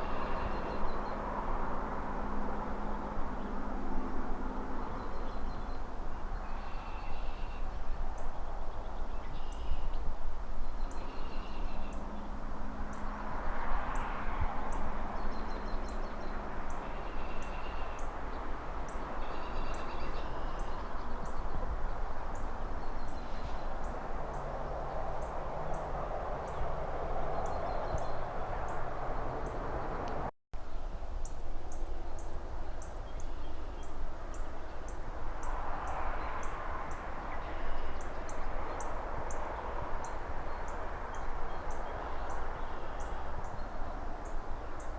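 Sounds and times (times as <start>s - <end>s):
cars passing: 0.0s - 30.3s, 31.5s - 44.9s
distant city traffic hum: 0.0s - 44.9s
birds chirping: 4.4s - 30.3s.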